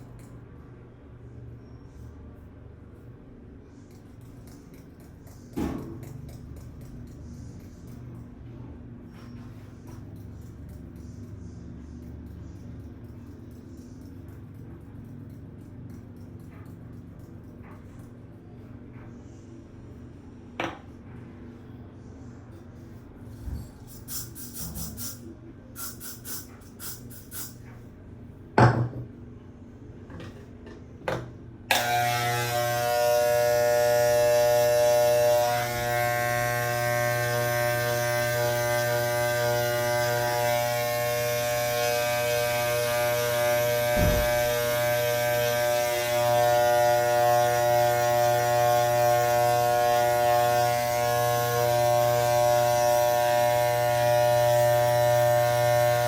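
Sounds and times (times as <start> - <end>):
hair clippers buzzing: 31.7 - 56.0.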